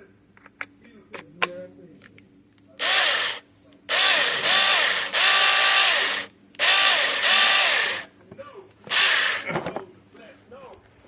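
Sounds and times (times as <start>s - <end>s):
mini chainsaw motor whining: 2.8s - 8.1s, 8.9s - 9.5s.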